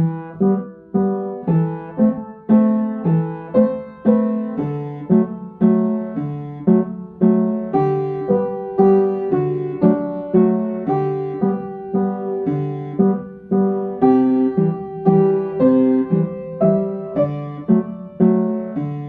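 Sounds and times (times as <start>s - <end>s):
piano waltz: 0.0s - 19.0s.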